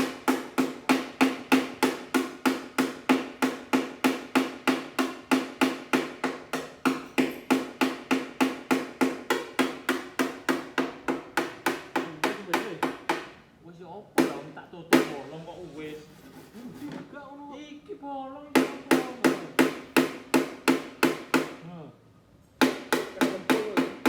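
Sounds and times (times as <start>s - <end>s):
hammer beating on metal panel: 0.0s - 13.4s, 14.2s - 15.2s, 18.5s - 21.6s, 22.6s - 24.0s.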